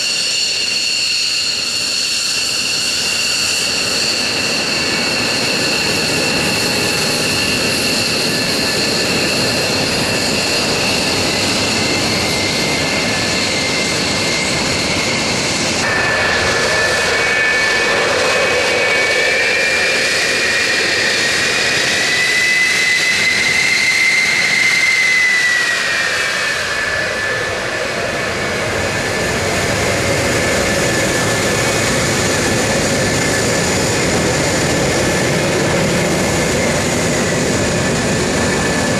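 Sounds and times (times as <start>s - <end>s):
high jet whine: 0.0s - 38.9s
jet aircraft roar: 0.0s - 38.9s.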